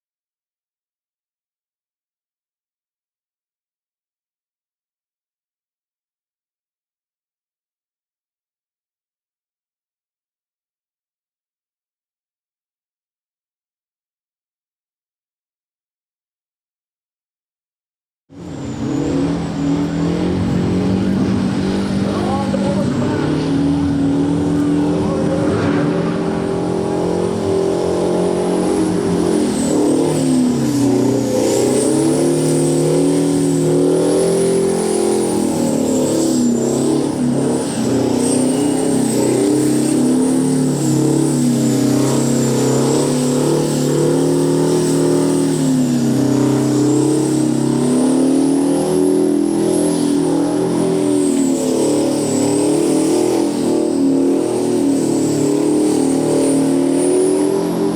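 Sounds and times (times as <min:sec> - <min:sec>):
diesel engine revving: 0:18.3 - 0:57.9
supercharger blower whine: 0:18.3 - 0:57.9.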